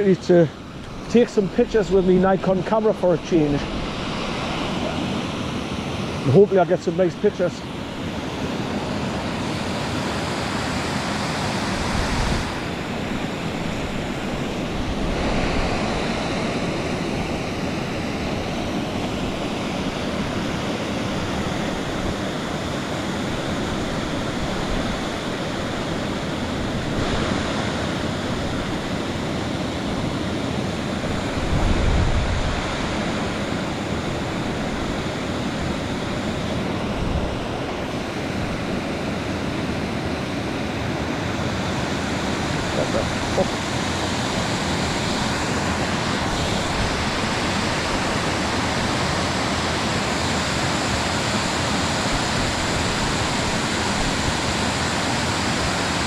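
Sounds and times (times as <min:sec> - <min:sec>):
waterfall rushing: 0:00.0 - 0:56.0
wind buffeting microphone: 0:29.8 - 0:38.8.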